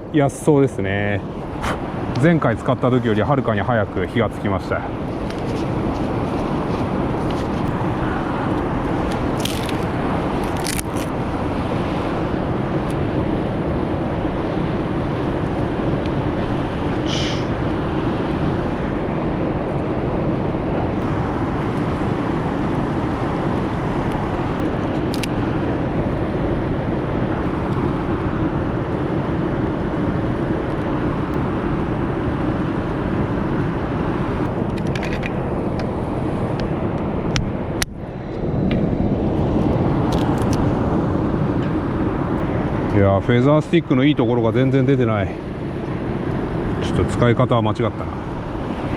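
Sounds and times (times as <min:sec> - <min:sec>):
fire rushing: 0:00.0 - 0:48.9
wood fire crackling: 0:08.9 - 0:11.1.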